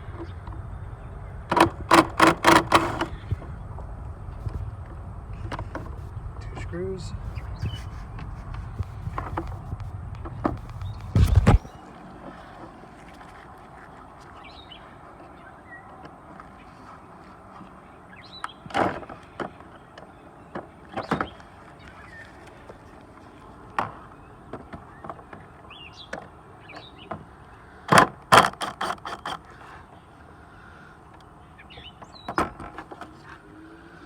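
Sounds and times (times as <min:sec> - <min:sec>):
plastic parts clicking and knocking: 0:01.5 - 0:03.2.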